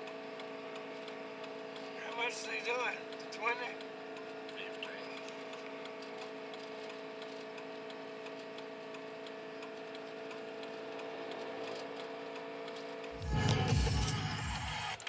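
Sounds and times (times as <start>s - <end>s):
steady relay ticking: 0.0s - 15.0s
low hum: 13.1s - 15.0s.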